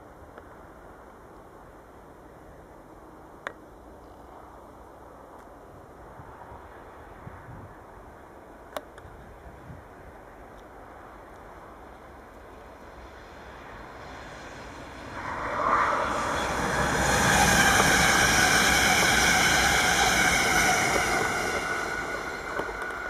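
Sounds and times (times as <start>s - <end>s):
electric train passing: 11.6s - 23.0s.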